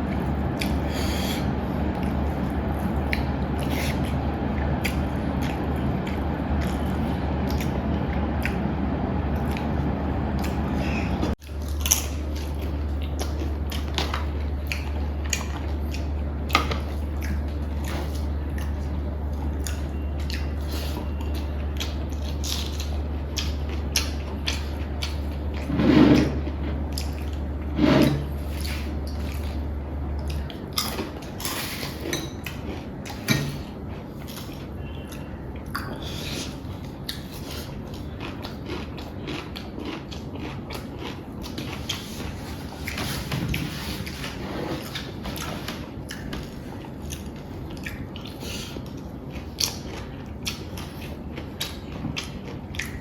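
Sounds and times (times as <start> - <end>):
chewing: 0.0 - 8.7, 10.4 - 27.5, 30.2 - 53.0
steady low hum: 0.0 - 53.0.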